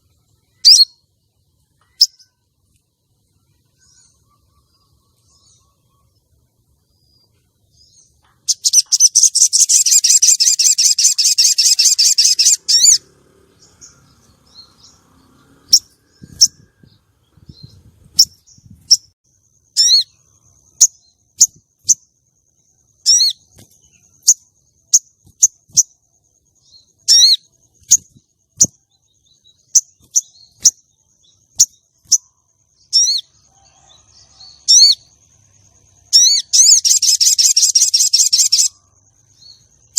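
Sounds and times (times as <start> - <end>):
bird chattering trill: 8.4 - 13.0, 19.7 - 22.0, 23.0 - 23.5, 27.0 - 28.7, 36.1 - 38.8.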